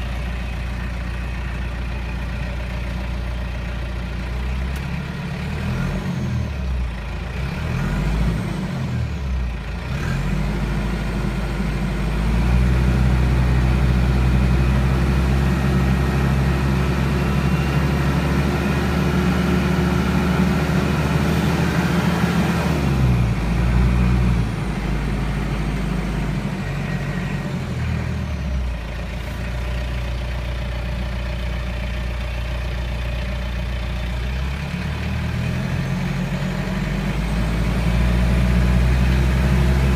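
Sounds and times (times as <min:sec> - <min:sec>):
tractor diesel engine revving: 0:00.0 - 0:39.9.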